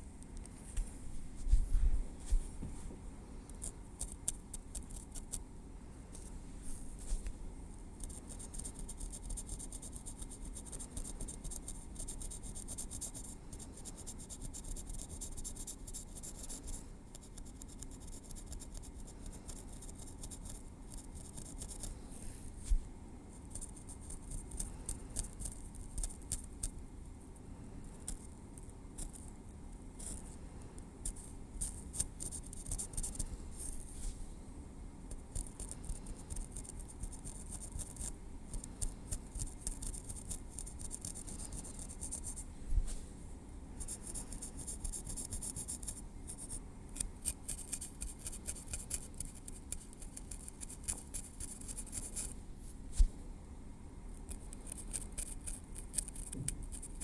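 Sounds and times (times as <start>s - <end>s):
metal tweezers clicking and scratching: 47.0s - 52.3s, 54.3s - 57.0s.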